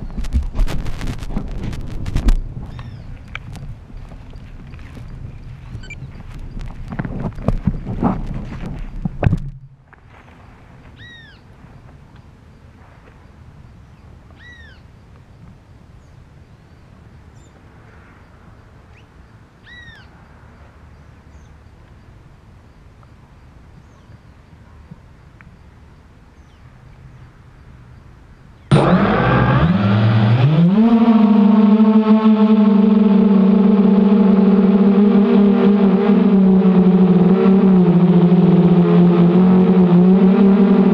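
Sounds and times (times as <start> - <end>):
faint outdoor background noise: 0.0 - 40.9
bird calling: 2.7 - 3.3, 4.7 - 6.6, 11.0 - 11.5, 13.9 - 14.9, 18.9 - 20.1
drone motors whining: 28.7 - 40.9.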